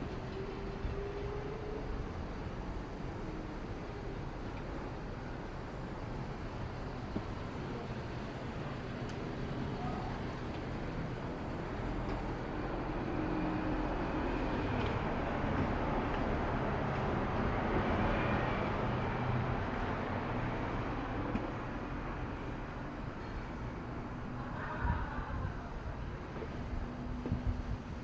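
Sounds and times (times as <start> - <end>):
street noise: 0.0 - 28.0
wind buffeting microphone: 23.5 - 28.0.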